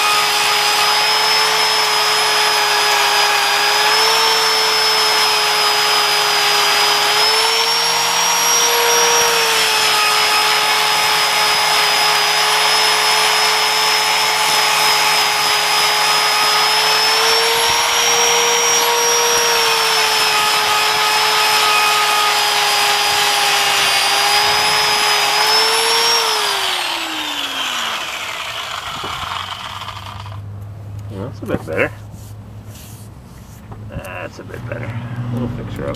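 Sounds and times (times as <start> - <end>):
power tool whining: 0.0 - 30.5.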